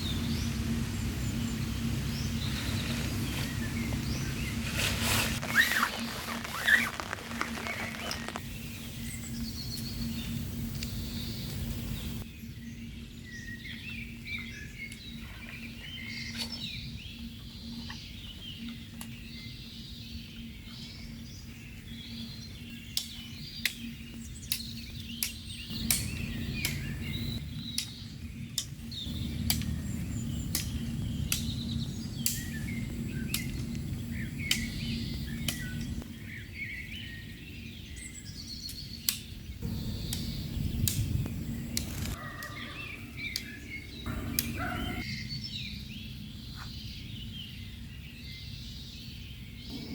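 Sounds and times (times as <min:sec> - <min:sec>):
small birds chirping: 0:00.0 - 0:49.9
low steady hum: 0:23.4 - 0:36.4.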